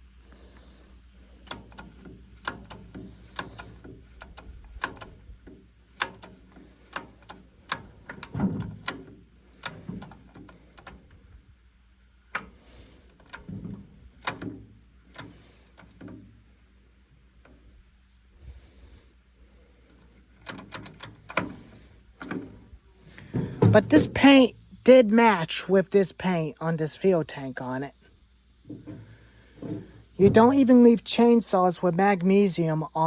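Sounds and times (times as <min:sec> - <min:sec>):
chainsaw clicks and knocks: 0:01.4 - 0:11.4, 0:12.1 - 0:16.4, 0:20.1 - 0:24.1
heavy thuds: 0:22.3 - 0:24.8.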